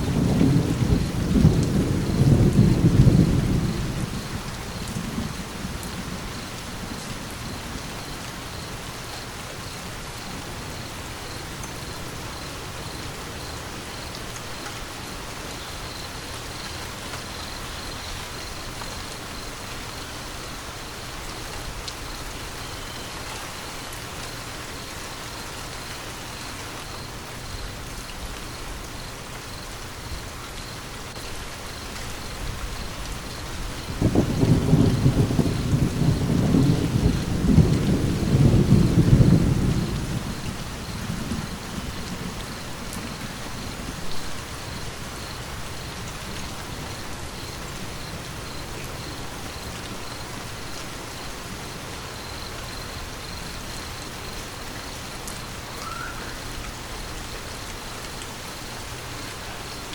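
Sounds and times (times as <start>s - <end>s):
thunder rumble: 0.0s - 8.8s, 31.8s - 51.5s
steady rain: 0.0s - 59.9s.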